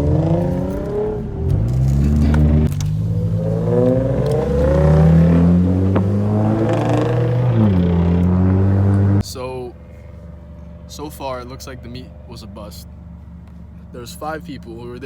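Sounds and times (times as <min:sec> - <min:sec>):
car engine accelerating: 0:00.0 - 0:09.3.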